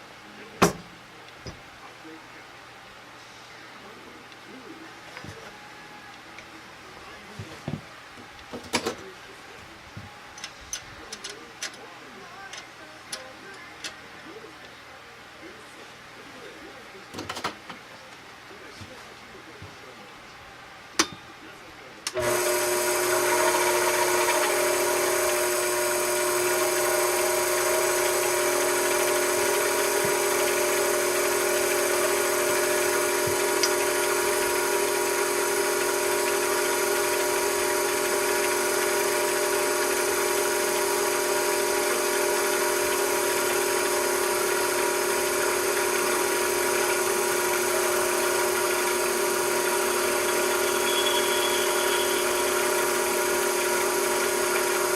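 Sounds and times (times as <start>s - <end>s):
machine tool motor whine: 22.1s - 54.9s.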